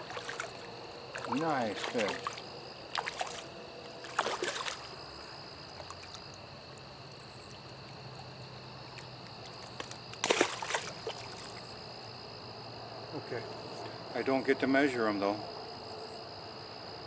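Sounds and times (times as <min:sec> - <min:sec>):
stream flowing: 0:00.0 - 0:12.0
insect drone: 0:00.0 - 0:17.0.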